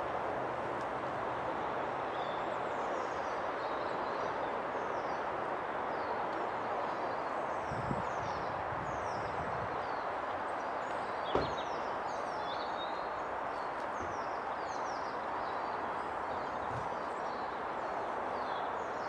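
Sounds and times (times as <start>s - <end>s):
small birds chirping: 6.8s - 19.0s
short knock: 11.3s - 11.6s.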